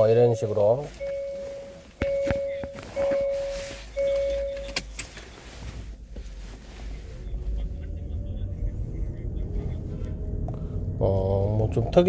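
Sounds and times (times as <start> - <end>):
car warning chime dings: 0.0 - 5.2
car engine low rumble: 0.0 - 12.0
clicks: 4.1 - 5.3.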